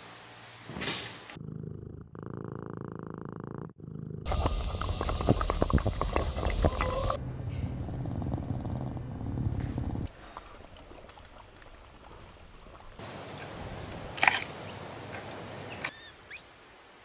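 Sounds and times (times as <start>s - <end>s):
panda chewing bamboo: 4.2s - 7.2s.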